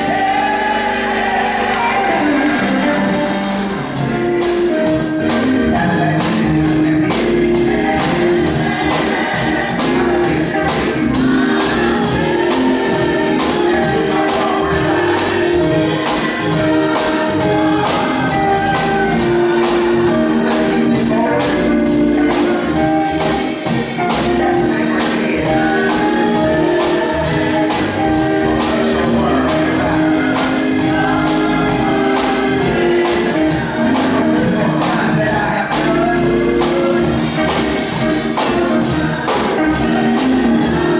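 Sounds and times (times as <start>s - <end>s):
gospel singing over instruments: 0.0s - 40.9s
tambourine shaking: 0.0s - 40.9s.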